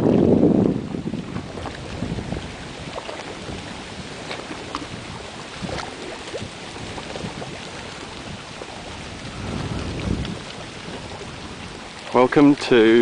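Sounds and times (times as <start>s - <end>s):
water washing around boat: 0.0s - 13.0s
wind on microphone: 0.0s - 13.0s
low rumble: 7.0s - 12.0s.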